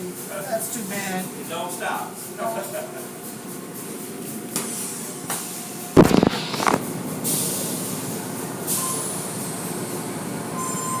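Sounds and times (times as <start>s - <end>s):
loud clunk: 6.0s - 6.8s.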